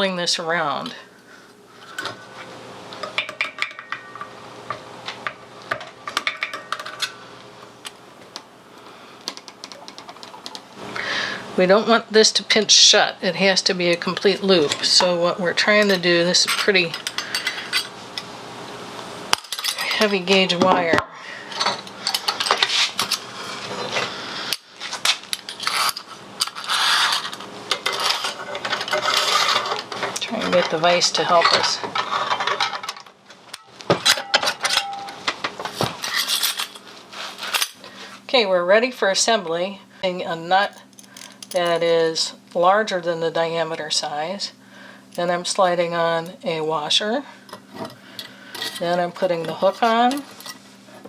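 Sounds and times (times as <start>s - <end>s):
wire scraping: 24.8s - 32.6s.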